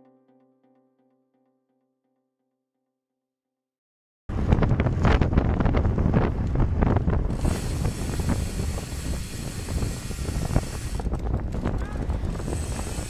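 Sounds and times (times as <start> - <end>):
wind buffeting microphone: 4.3 - 13.0.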